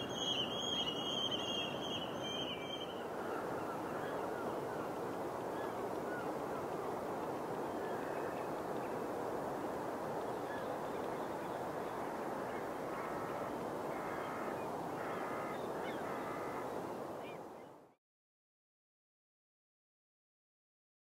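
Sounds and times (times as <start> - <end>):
distant birds calling: 0.0 - 9.0, 10.4 - 17.7
outdoor background rush: 0.0 - 17.9.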